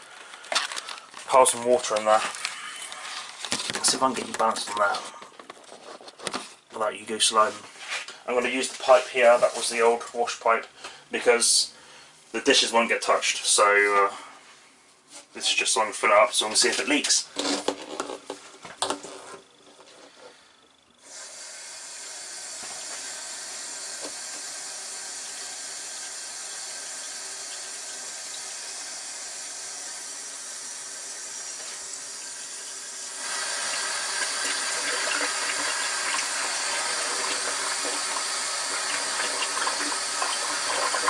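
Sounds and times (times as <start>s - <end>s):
water rushing from a hose: 21.1s - 41.0s.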